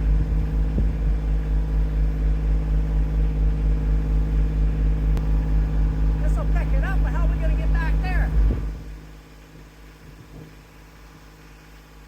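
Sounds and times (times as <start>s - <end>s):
tractor engine running: 0.0s - 9.0s.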